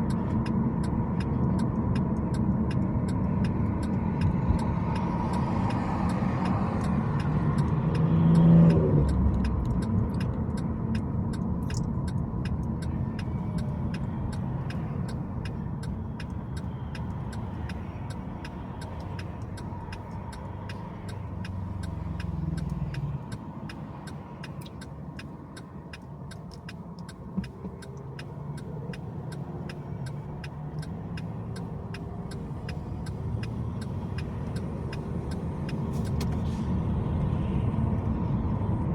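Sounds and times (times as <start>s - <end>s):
vehicle rising in pitch: 0.0s - 10.7s
faint steady ticking: 0.0s - 37.3s
car engine and tyre noise: 0.0s - 38.9s.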